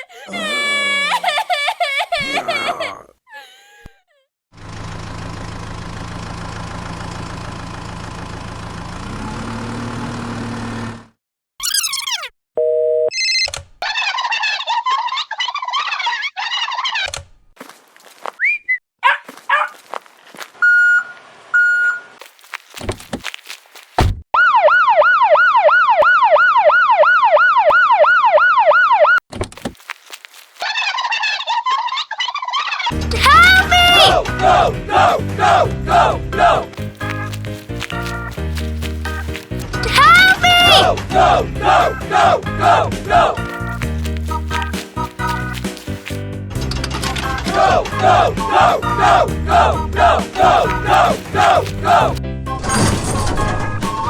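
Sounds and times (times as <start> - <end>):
tractor engine hum: 4.6 - 11.1, 32.9 - 52.2
high warbling tones: 11.6 - 12.3
electronic siren wailing: 24.4 - 29.2.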